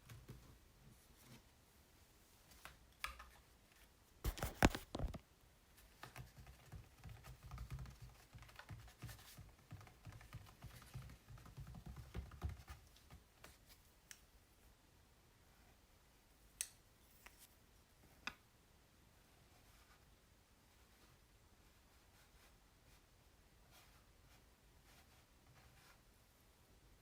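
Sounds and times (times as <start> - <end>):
fingers tapping on canvas: 6.0 - 13.2.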